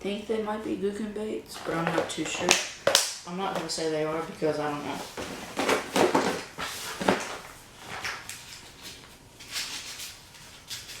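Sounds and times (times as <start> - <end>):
plastic packs rustling: 1.5 - 10.3
soft shuffling: 3.7 - 5.9.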